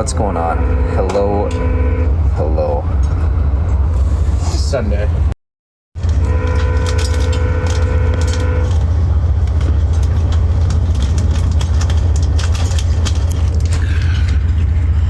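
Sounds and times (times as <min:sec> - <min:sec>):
train cabin rumble: 0:00.0 - 0:05.3, 0:06.0 - 0:15.0
small rattles and clicks: 0:06.1 - 0:14.4.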